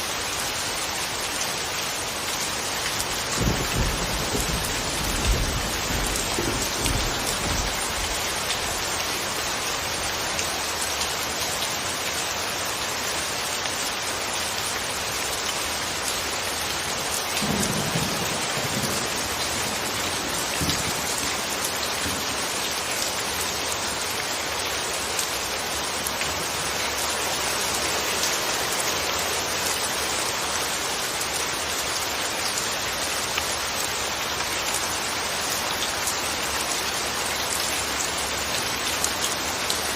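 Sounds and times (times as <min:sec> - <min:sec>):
steady rain falling: 0:00.0 - 0:39.9
low rumbles of thunder: 0:03.2 - 0:08.3, 0:17.4 - 0:21.5.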